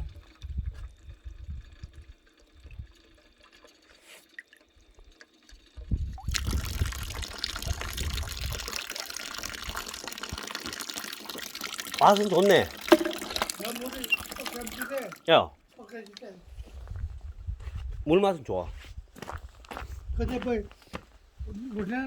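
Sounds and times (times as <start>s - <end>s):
tap water running: 0.0s - 15.3s.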